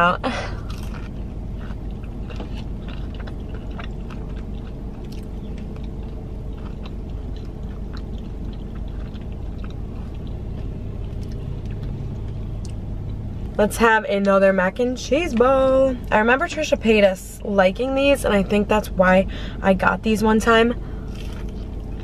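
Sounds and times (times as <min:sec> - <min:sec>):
steady low hum: 0:00.0 - 0:22.0
chewing with mouth clicks: 0:00.4 - 0:13.5, 0:21.0 - 0:22.0.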